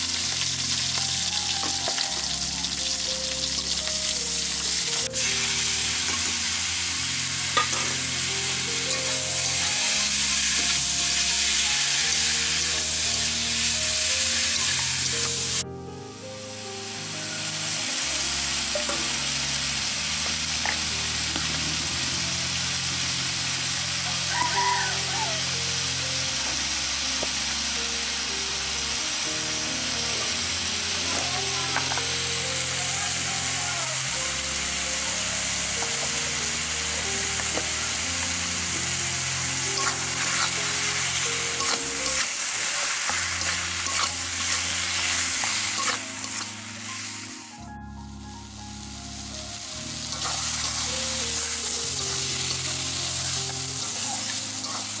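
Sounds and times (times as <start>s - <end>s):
potatoes sizzling in oil: 0.0s - 15.6s, 16.8s - 47.3s, 48.4s - 55.0s
soft background music: 0.0s - 55.0s
metal spatula scraping pan: 39.8s - 40.8s, 41.6s - 46.5s.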